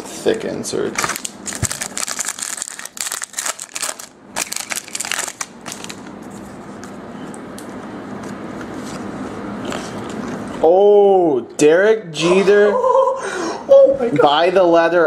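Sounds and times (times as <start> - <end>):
foil wrapper crinkling: 1.0 - 6.2.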